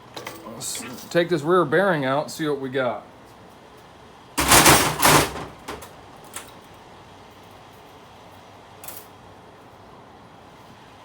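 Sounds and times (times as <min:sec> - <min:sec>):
metal parts clicking: 0:04.4 - 0:05.9.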